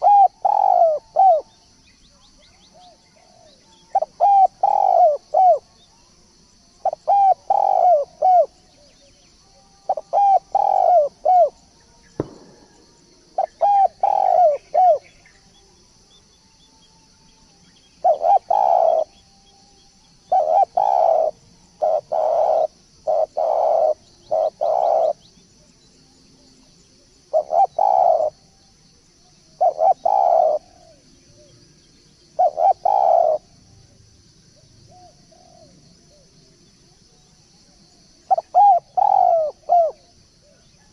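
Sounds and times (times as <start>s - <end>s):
dove cooing: 0.0s - 1.6s, 2.6s - 5.9s, 6.8s - 8.9s, 9.8s - 11.6s, 13.4s - 15.2s, 18.0s - 19.2s, 20.2s - 25.3s, 27.3s - 28.5s, 29.6s - 31.5s, 32.4s - 33.6s, 38.3s - 40.9s
steady high hiss: 4.5s - 40.9s.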